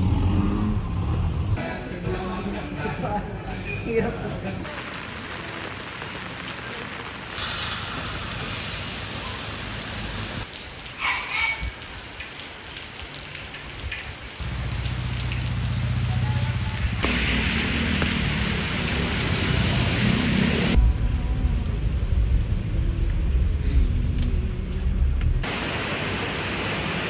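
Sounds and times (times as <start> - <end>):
steady rainfall: 1.6 - 27.0
low steady rumble: 14.5 - 25.5.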